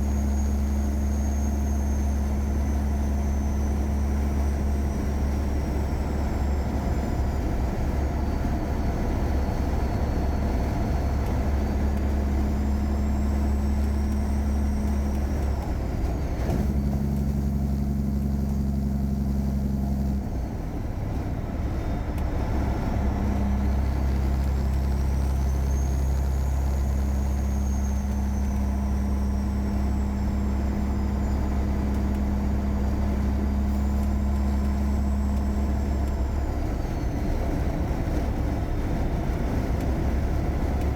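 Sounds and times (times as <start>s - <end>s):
truck diesel engine running: 0.0s - 40.9s.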